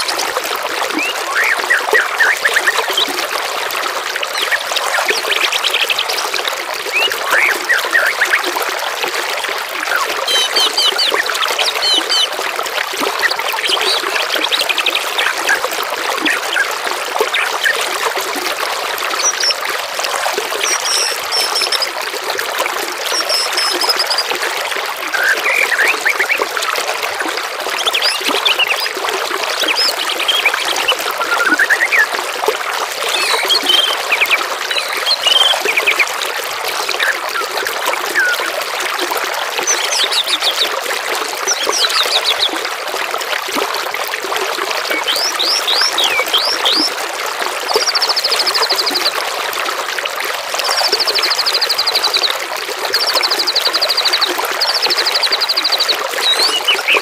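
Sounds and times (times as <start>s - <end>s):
trickling water: 0.0s - 57.0s
songbird chirps: 9.9s - 12.3s, 20.6s - 21.9s, 23.1s - 24.3s, 27.8s - 28.9s, 29.6s - 32.1s, 33.0s - 36.1s, 53.3s - 57.0s
buzzy bird trills: 33.0s - 36.0s.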